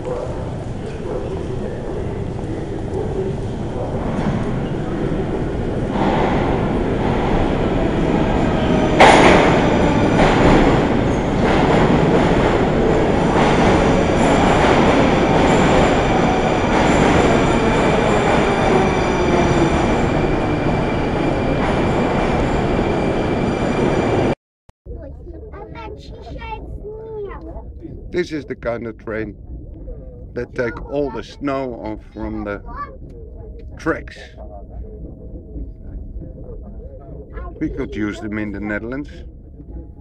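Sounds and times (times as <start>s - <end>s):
train wheels rumbling on rails: 0.0s - 24.4s.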